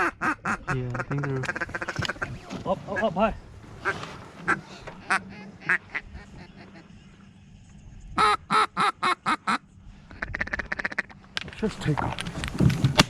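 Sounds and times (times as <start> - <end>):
duck call quacks: 0.0 - 2.2, 5.0 - 6.8, 8.2 - 11.2.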